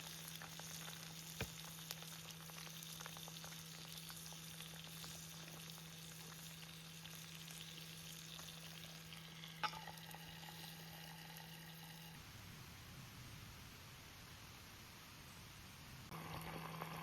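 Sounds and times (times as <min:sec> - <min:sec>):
food sizzling in a pan: 0:00.0 - 0:12.2, 0:16.1 - 0:17.0.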